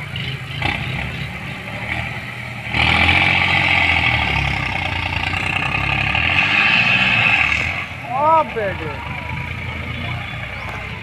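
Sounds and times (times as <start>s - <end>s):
tractor engines under heavy load: 0.0s - 11.0s.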